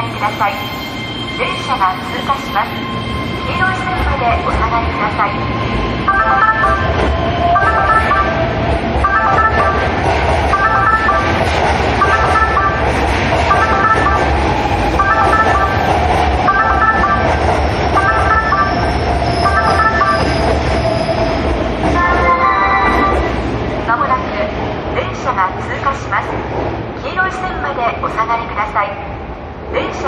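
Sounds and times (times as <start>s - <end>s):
train noise: 0.0s - 30.0s.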